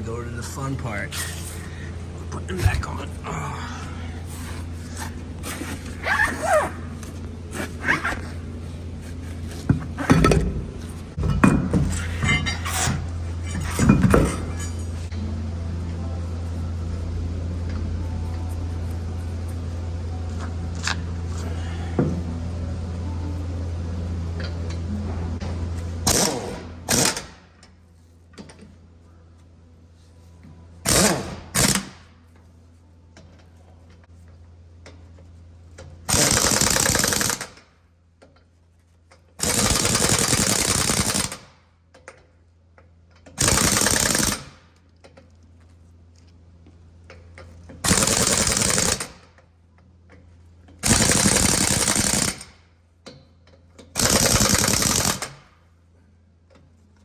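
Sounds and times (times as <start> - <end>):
steady low hum: 0.0 - 39.9
pneumatic impact wrench hammering: 11.2 - 14.9, 26.0 - 27.5, 30.8 - 32.0, 36.1 - 37.7, 39.4 - 41.5, 43.2 - 44.7, 47.8 - 49.3, 50.8 - 52.6, 53.8 - 55.6.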